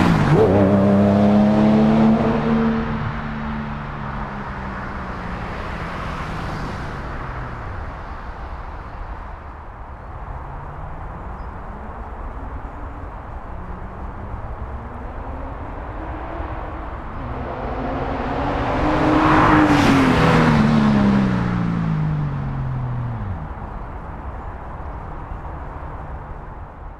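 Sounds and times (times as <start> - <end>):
car driving past: 10.4 - 24.0.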